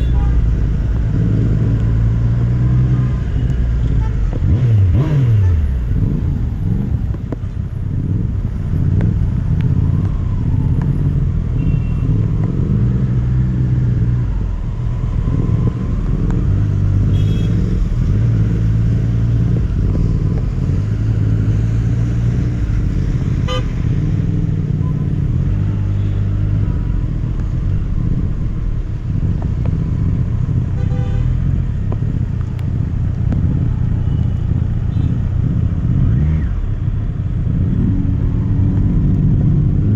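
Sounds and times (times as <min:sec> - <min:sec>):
motorcycle engine revving: 0:00.0 - 0:07.2, 0:07.9 - 0:28.4
wind and road noise: 0:00.0 - 0:39.9.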